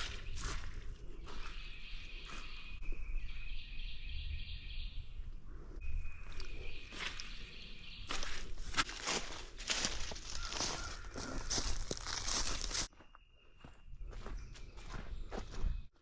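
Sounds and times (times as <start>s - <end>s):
crunching footsteps: 0.0s - 2.8s, 6.2s - 16.0s
wind rumble on microphone: 0.0s - 8.8s.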